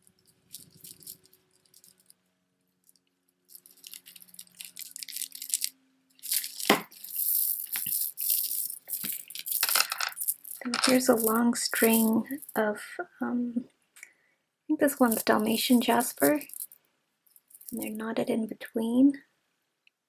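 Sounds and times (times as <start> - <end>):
stone beads clicking and rattling: 0.1 - 2.1, 2.8 - 12.6, 15.0 - 18.0.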